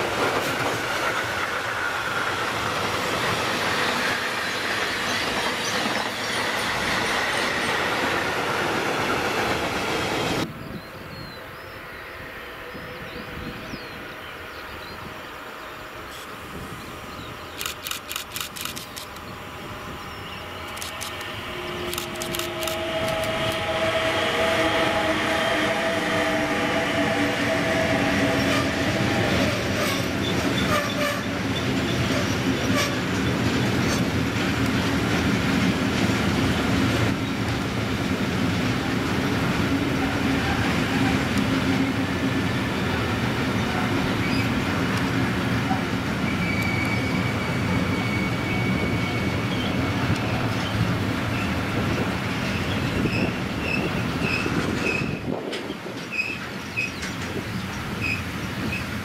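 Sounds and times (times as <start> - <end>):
electric locomotive whine: 0.0 - 17.6, 19.1 - 59.0
high squeal: 46.2 - 50.1.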